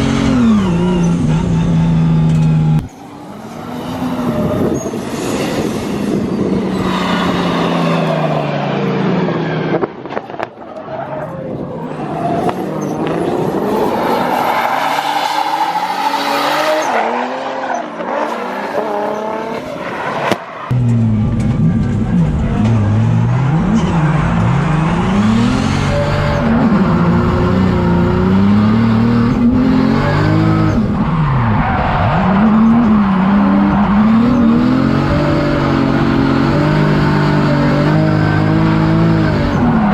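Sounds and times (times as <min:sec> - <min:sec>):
tire squeal: 0:00.4 - 0:20.7, 0:30.2 - 0:35.2, 0:37.0 - 0:39.9
car engine revving hard: 0:21.8 - 0:39.9.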